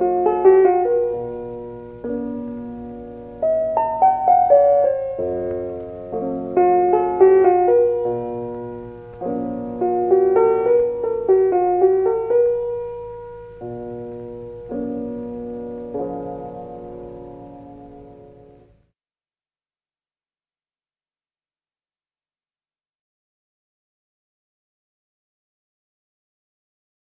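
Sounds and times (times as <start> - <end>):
slow piano music: 0.0 - 18.9.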